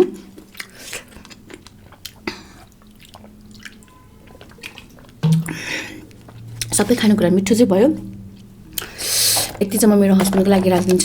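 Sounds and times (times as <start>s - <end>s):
person chewing food: 0.2s - 6.7s.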